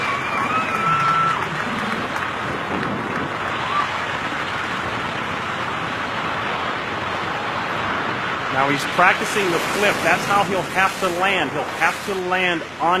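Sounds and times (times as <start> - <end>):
crowd applauding and cheering: 0.0 - 4.1.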